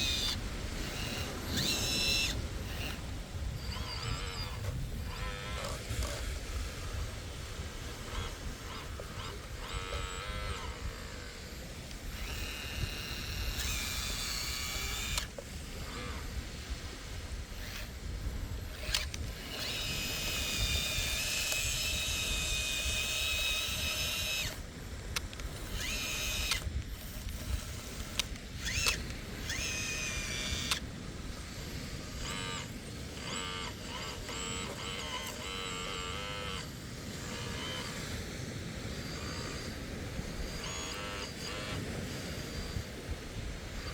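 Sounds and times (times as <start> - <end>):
electric hydraulic pump whining: 0.0 - 43.9.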